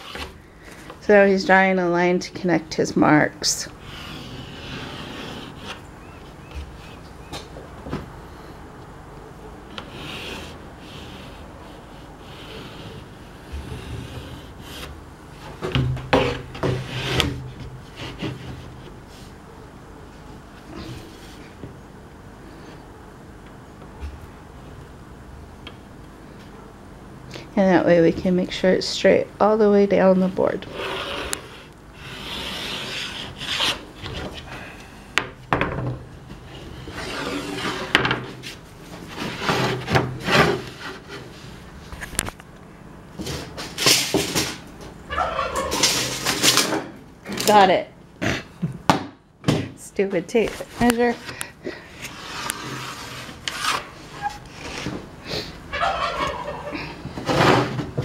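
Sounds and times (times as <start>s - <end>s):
wood scraping on plywood: 0.0s - 0.9s, 3.8s - 7.0s, 9.7s - 19.3s, 30.6s - 34.6s, 36.3s - 41.6s, 50.4s - 55.1s
pencil scratching on wood: 3.8s - 5.8s, 9.8s - 14.9s, 30.7s - 33.8s.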